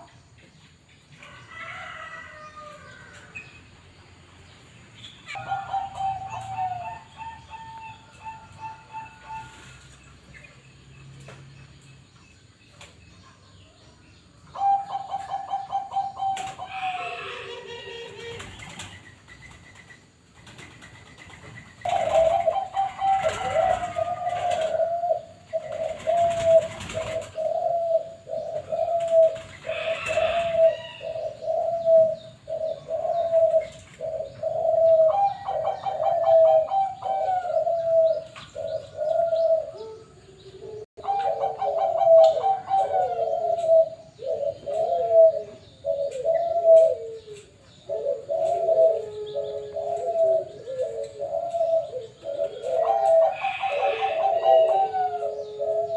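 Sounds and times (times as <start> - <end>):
small birds chirping: 0.0 - 55.9
lower-pitched cooing: 5.3 - 9.9, 14.6 - 18.6, 21.9 - 55.9
dove cooing: 5.3 - 10.0, 14.5 - 19.0, 20.6 - 55.9.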